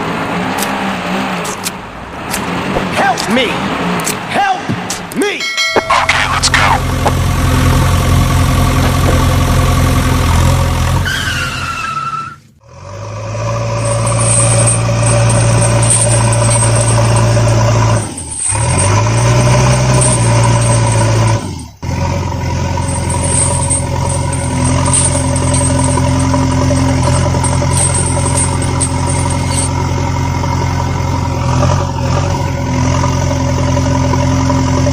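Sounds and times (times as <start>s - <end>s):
vehicle engine humming: 0.0s - 34.9s.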